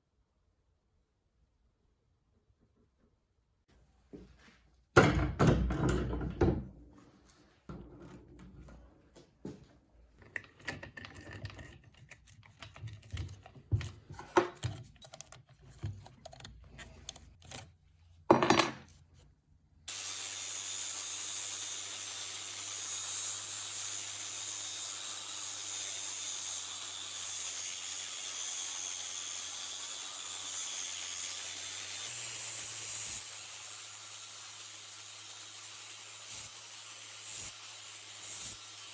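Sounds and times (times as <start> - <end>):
tools being handled: 10.2 - 19.0
rushing hiss of air: 19.9 - 38.9.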